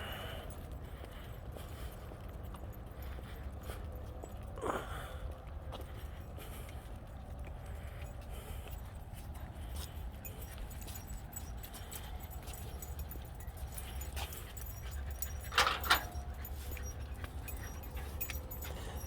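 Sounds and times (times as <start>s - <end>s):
dog whimpering: 14.6s - 19.0s.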